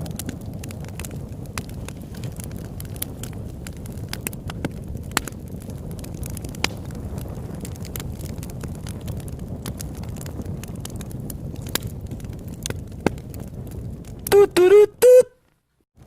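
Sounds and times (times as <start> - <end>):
campfire flames rumbling: 0.0 - 14.3
fire crackles and pops: 0.0 - 16.0.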